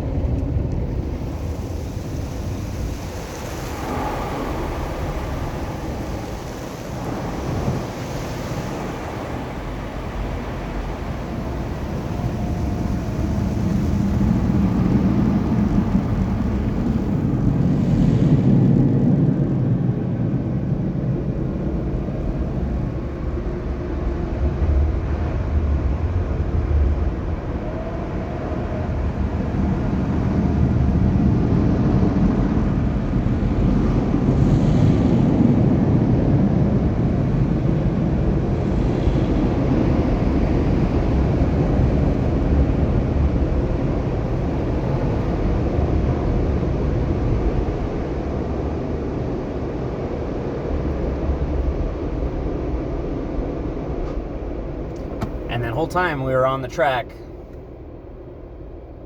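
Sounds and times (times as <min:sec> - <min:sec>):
car wash machinery rumbling: 0:00.0 - 0:35.9, 0:36.8 - 0:57.5.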